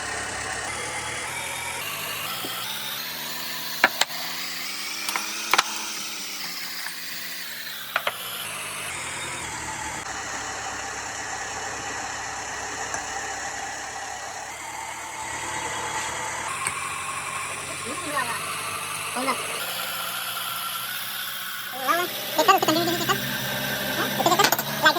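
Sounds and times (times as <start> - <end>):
car engine revving and idling: 0.0 - 24.9
sharp clicks: 2.3 - 8.5.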